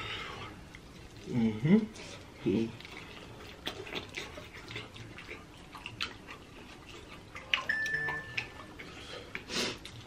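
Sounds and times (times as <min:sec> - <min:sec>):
wet chewing and lip-smacking: 0:00.5 - 0:10.0
thin high steady tone: 0:07.6 - 0:08.8.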